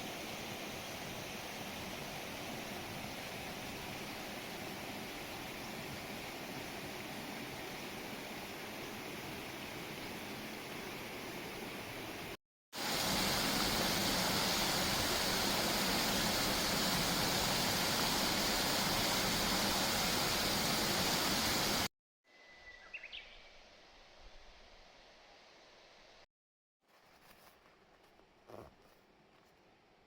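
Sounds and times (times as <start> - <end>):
loud rushing water: 12.8 - 21.9.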